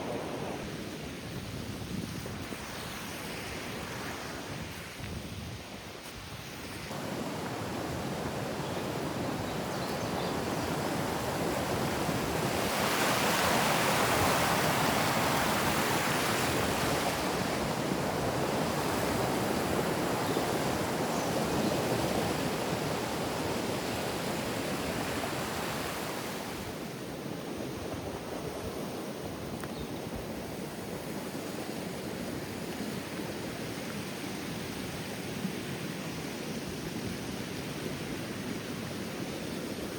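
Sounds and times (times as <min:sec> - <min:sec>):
river rushing: 0:06.9 - 0:26.8.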